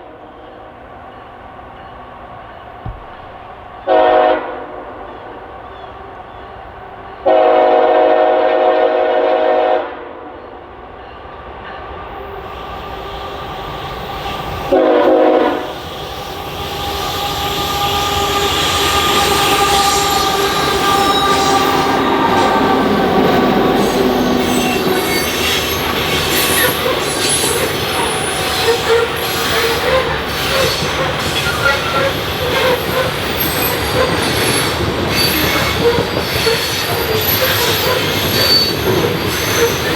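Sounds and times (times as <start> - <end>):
locomotive air horn: 3.8 - 4.9, 7.2 - 10.2, 14.7 - 15.8, 16.7 - 33.8
steel wheels squealing: 15.6 - 39.9.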